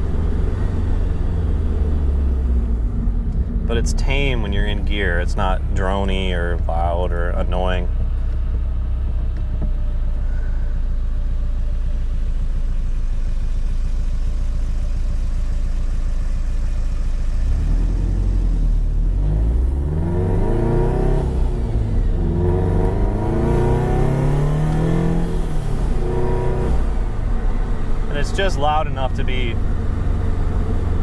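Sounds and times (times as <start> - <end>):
car engine revving through gears: 17.4 - 31.0.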